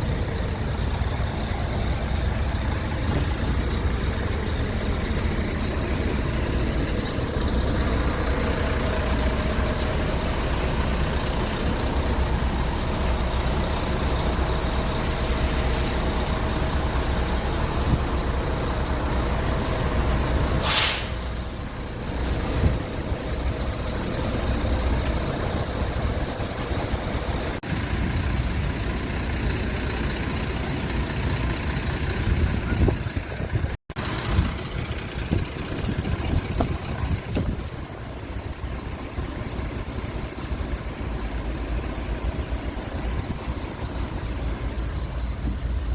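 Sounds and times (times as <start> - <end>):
truck diesel engine running: 0.0 - 45.9
compressed air hiss: 20.6 - 21.5.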